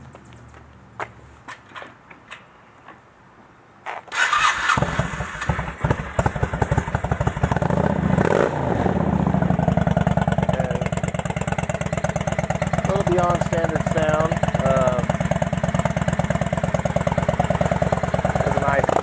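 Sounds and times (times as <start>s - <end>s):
motorcycle engine starting and idling: 3.8s - 19.0s.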